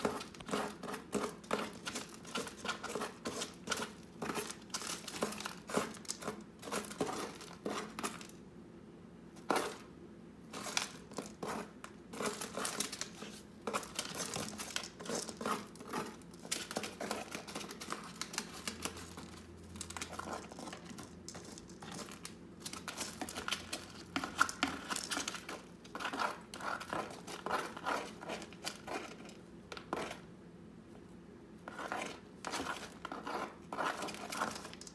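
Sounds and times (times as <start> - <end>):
parrot shredding material: 10.5 - 30.2.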